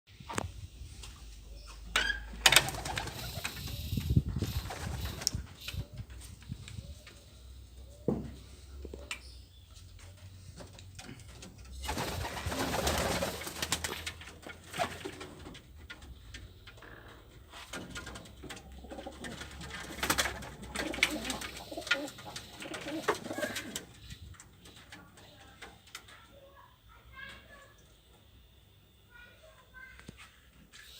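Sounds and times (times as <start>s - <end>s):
pigeons cooing: 18.1s - 24.0s.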